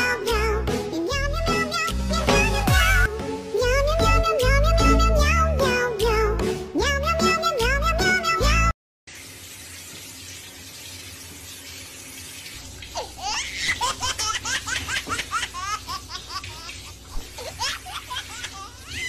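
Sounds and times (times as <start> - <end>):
shower head spraying water: 9.1 - 19.0
high-pitched laughter: 13.0 - 19.0.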